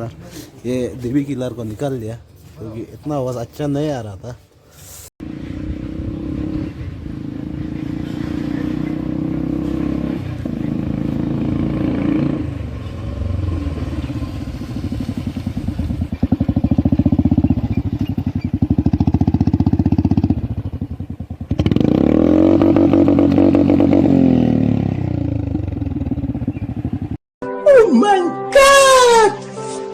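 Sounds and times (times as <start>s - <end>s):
motorcycle engine running: 5.2s - 27.2s.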